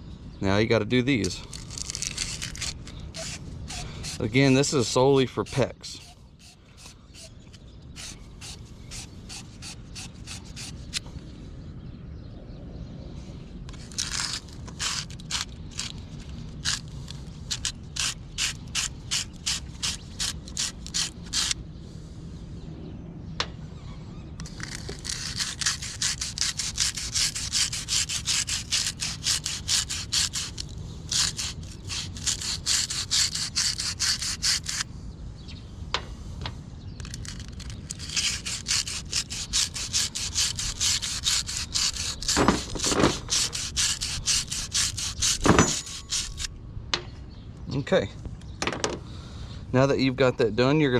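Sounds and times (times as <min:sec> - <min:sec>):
scrubbing copper pipe: 0:01.2 - 0:11.0, 0:24.4 - 0:34.8, 0:37.0 - 0:46.5.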